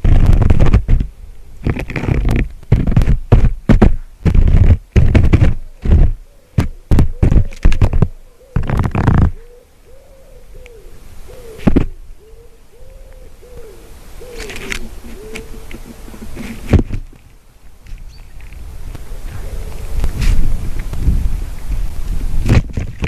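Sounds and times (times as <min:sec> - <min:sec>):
loud knocks and thumps: 0:01.7 - 0:09.3
faint low hooting call: 0:09.3 - 0:16.6, 0:19.0 - 0:20.3.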